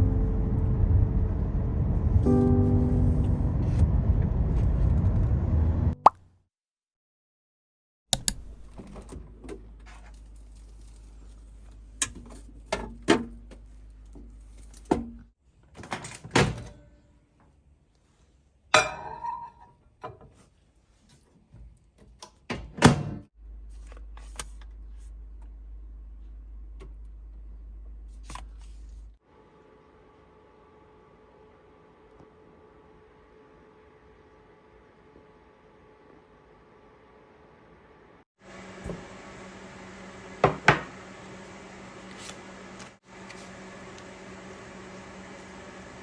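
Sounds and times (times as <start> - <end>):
faint low hum: 0.0 - 4.6.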